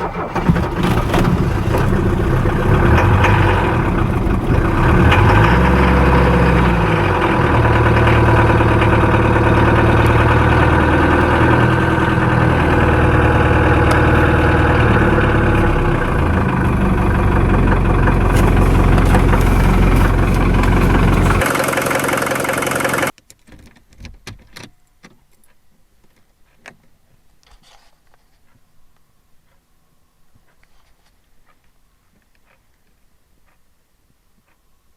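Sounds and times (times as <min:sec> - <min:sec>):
diesel engine running: 0:00.0 - 0:23.1.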